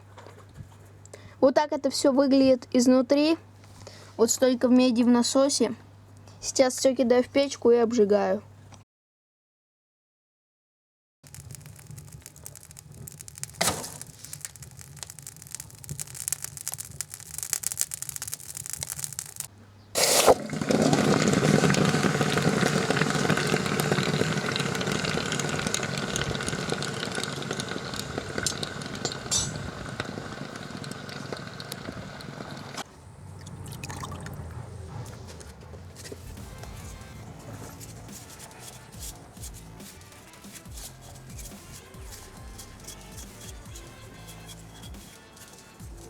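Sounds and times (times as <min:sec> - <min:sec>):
fire crackling in a stove: 0:11.2 - 0:33.4, 0:34.0 - 0:46.0
rush of flame: 0:11.3 - 0:32.8.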